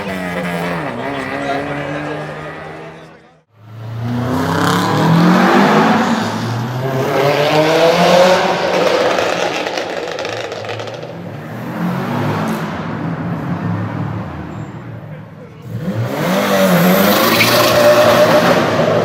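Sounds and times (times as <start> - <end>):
rough engine and exhaust noise: 0.0 - 7.6
car engine accelerating: 0.0 - 14.4, 15.6 - 19.0.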